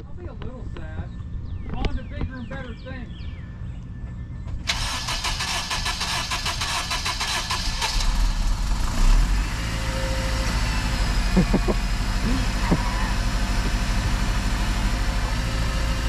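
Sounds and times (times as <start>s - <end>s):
engine starter cranking: 4.7s - 8.6s
car engine idling: 4.7s - 16.0s.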